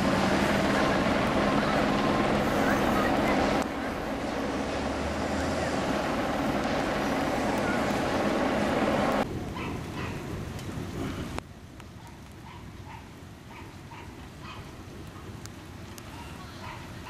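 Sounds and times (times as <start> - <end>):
rain and wind storm: 0.0 - 17.0
distant dog barking: 7.6 - 8.0, 9.6 - 10.2, 12.0 - 14.7, 16.6 - 17.0.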